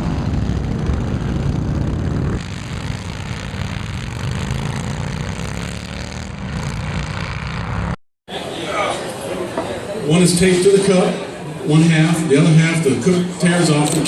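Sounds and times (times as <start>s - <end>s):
motorcycle engines revving: 0.0s - 8.0s.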